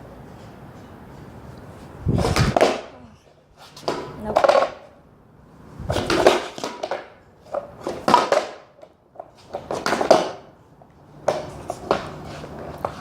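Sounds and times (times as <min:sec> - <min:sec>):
skateboard clattering on ground: 0:02.2 - 0:03.0, 0:03.6 - 0:05.0, 0:05.9 - 0:10.6, 0:11.2 - 0:13.0.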